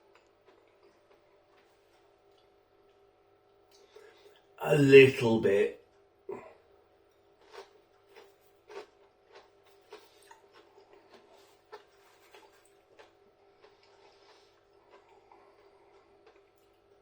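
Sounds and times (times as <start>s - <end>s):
chewing crispy food: 0.0s - 4.4s, 5.9s - 17.0s.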